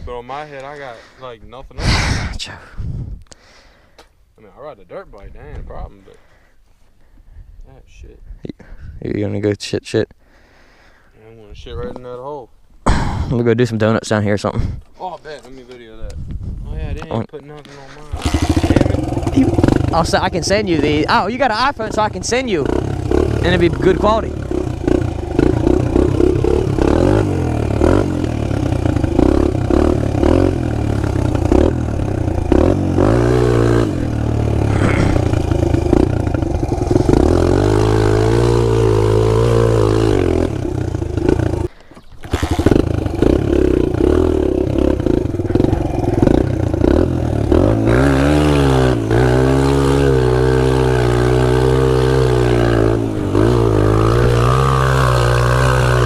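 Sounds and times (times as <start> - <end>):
pit bike engine revving: 18.0 - 56.0.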